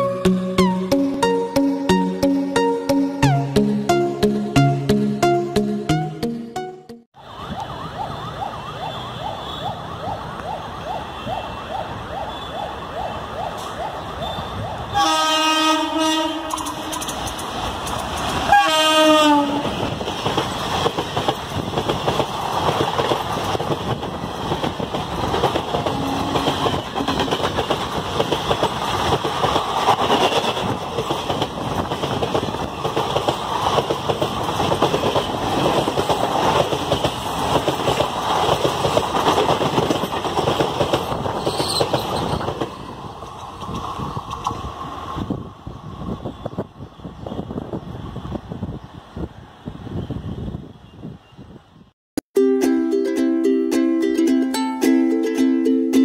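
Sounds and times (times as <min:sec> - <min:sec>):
train rumbling: 0:14.4 - 0:50.8
train horn blasts: 0:14.9 - 0:17.0, 0:18.5 - 0:19.8, 0:25.9 - 0:27.3
wheels rattling over rails: 0:16.4 - 0:18.5, 0:19.6 - 0:45.6.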